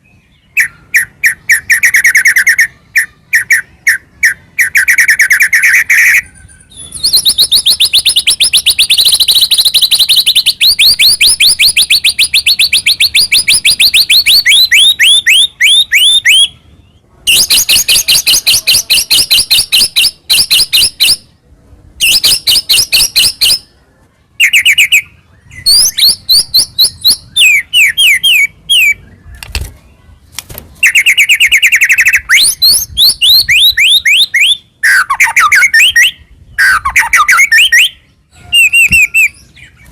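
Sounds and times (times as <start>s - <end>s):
bird singing whistled notes: 0.0s - 21.3s, 22.0s - 23.8s, 24.4s - 29.4s, 30.8s - 39.9s.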